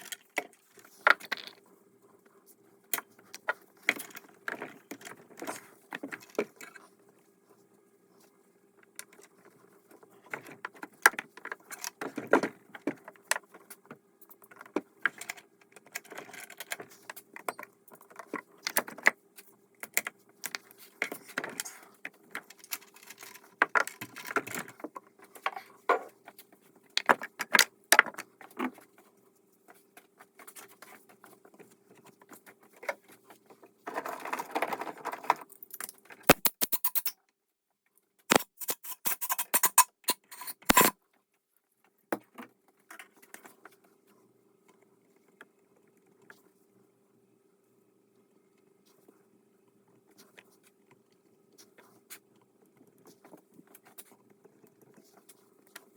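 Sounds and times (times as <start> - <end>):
metal tools clinking and rattling: 35.6 - 37.1, 38.3 - 40.9.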